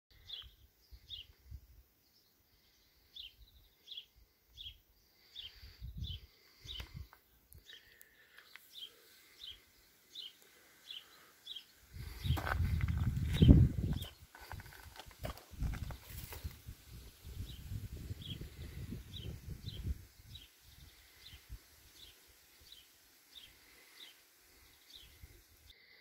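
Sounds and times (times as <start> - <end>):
bird chirping: 0.1 - 1.4, 2.0 - 12.6, 17.1 - 25.8
wind rumbling on microphone: 5.7 - 7.1, 11.9 - 21.6.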